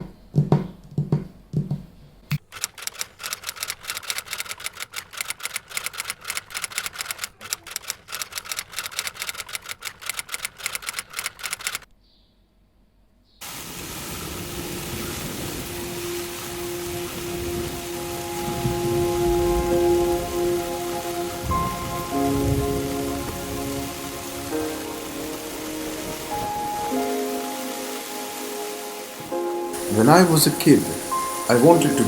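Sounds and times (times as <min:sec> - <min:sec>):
typewriter keys clacking: 0:02.4 - 0:11.9
steady rain: 0:13.4 - 0:32.0.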